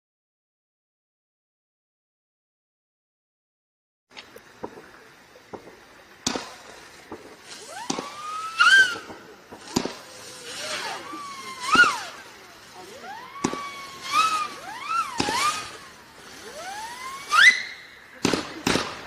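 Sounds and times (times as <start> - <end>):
firework cracks: 4.1 - 19.0
firework whistles: 4.6 - 19.0.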